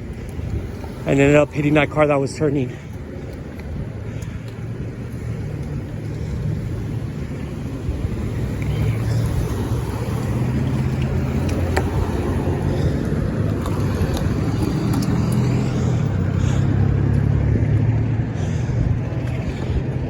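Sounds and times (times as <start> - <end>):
road traffic noise: 0.0 - 20.0
vehicle engine humming: 0.0 - 20.0.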